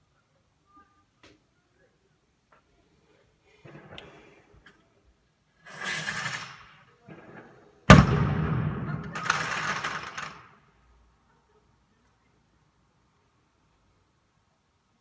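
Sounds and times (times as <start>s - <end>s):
firework bang: 7.9s - 9.7s
burst of noise: 7.9s - 10.3s.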